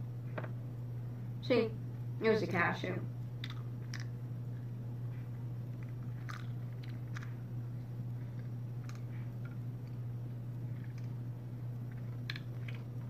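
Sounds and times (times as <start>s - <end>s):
steady low hum: 0.0s - 13.0s
person chewing crunchy food: 3.4s - 4.2s, 5.6s - 13.0s.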